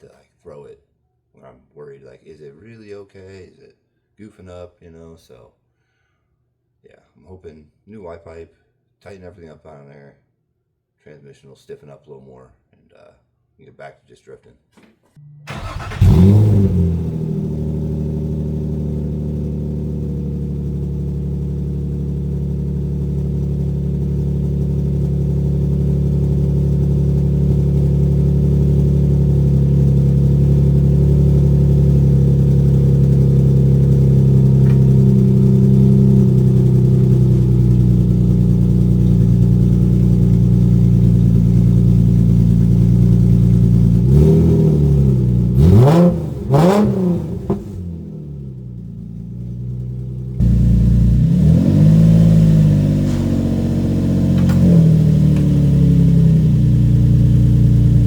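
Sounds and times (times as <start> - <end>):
car engine idling: 15.5 - 58.0.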